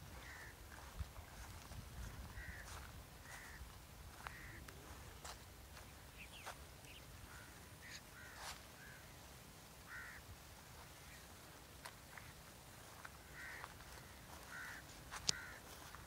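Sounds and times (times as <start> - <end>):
short bird calls: 2.3 - 9.2, 13.1 - 16.0.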